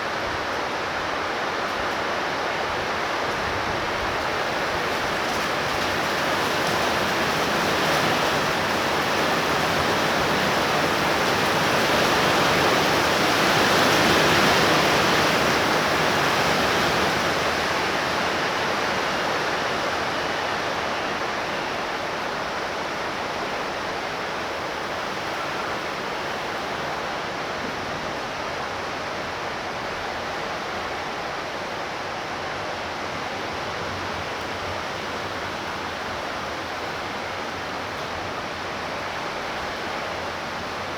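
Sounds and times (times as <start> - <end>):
torrential rain pouring: 0.0 - 40.9.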